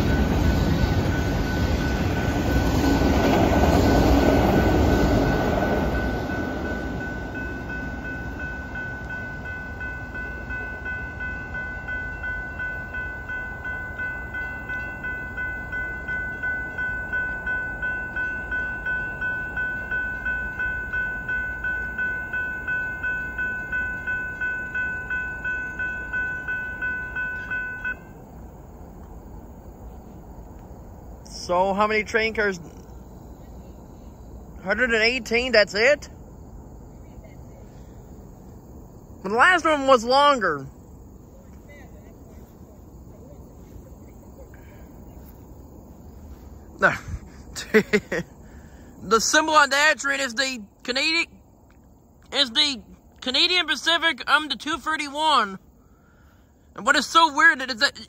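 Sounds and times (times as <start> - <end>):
crossing warning bell ringing: 0.0 - 29.0, 52.3 - 58.0
freight train cars rumbling: 0.0 - 58.0.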